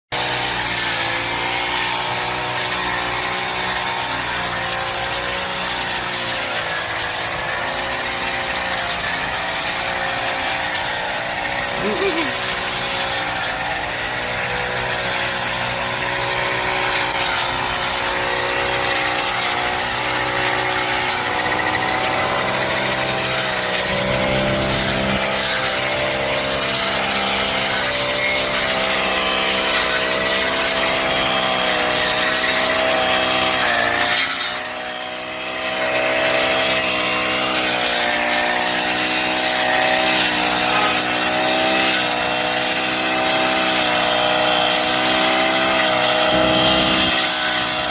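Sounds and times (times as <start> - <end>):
brush cutter engine running: 0.2 - 47.9.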